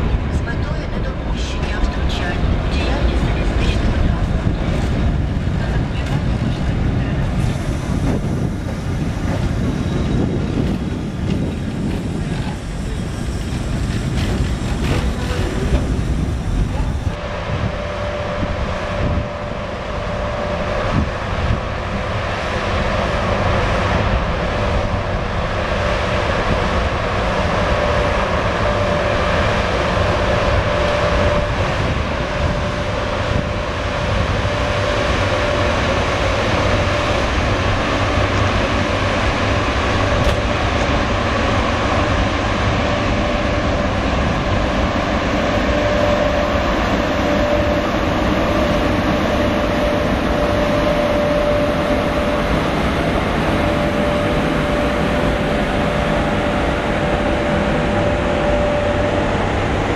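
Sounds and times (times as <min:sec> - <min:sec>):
train rumbling on rails: 0:00.0 - 0:59.9
thin whine: 0:12.8 - 0:59.9.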